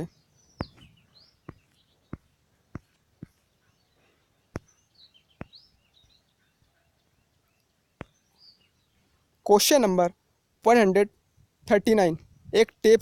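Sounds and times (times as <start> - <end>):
faint bird chirps: 0.0 - 9.3.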